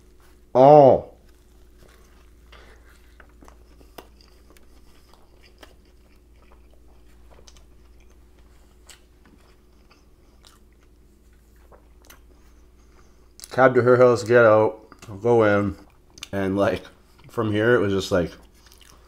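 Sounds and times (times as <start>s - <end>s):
person chewing food: 1.2s - 13.6s, 14.8s - 16.4s, 17.0s - 17.4s, 18.4s - 19.0s.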